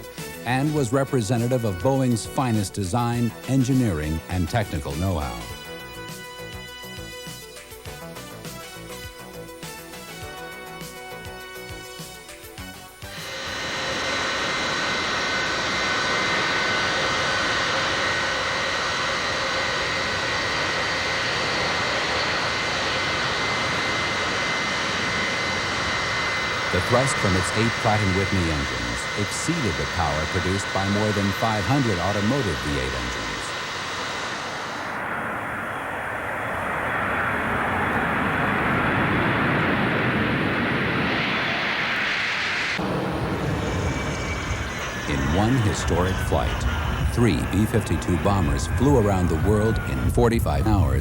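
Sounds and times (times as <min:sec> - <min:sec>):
high steady engine whine: 0:00.0 - 0:51.0
jet engines roaring: 0:00.0 - 0:51.0.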